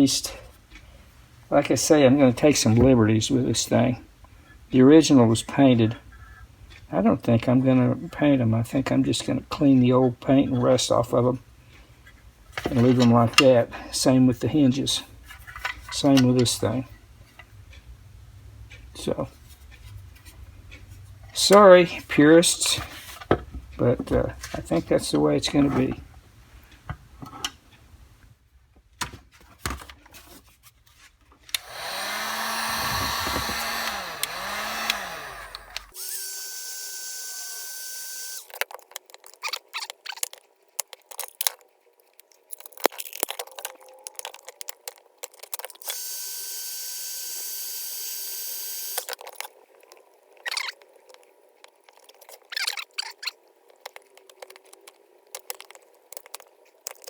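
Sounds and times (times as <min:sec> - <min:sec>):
small power tool running: 0:31.6 - 0:38.5, 0:45.8 - 0:49.2
metal parts clicking and knocking: 0:38.5 - 0:46.0, 0:53.7 - 0:57.0.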